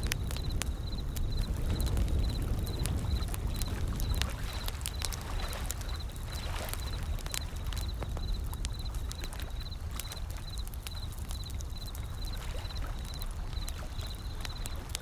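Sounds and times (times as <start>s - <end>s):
ocean waves rumbling: 0.0s - 10.0s
wood fire crackling and popping: 0.0s - 15.0s.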